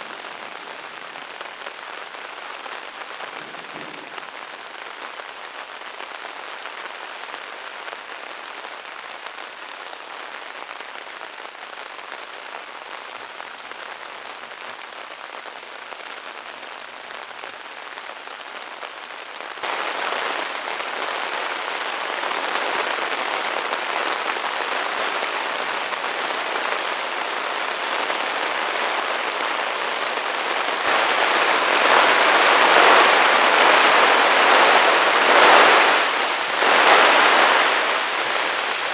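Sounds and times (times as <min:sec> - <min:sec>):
heavy rain pouring: 0:00.0 - 0:08.9, 0:19.6 - 0:38.9.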